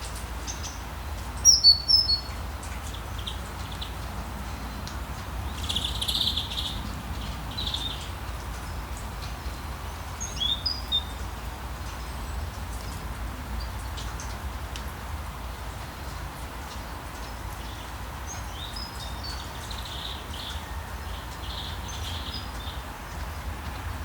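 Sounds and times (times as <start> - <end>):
small birds chirping: 1.4 - 11.3, 17.2 - 22.8.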